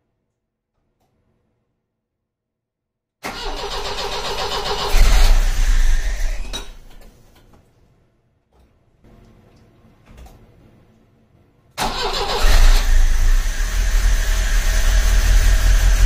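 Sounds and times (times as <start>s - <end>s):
engine starter cranking: 3.2s - 6.8s, 11.8s - 16.0s.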